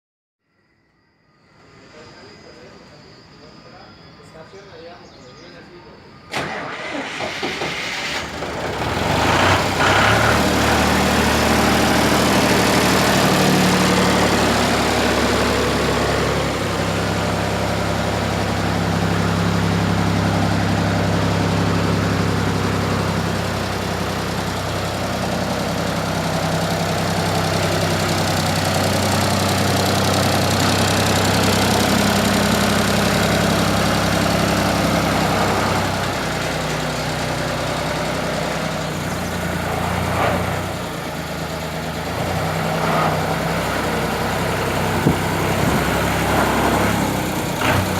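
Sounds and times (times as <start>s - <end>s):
tractor engine starting and running: 6.3s - 47.9s.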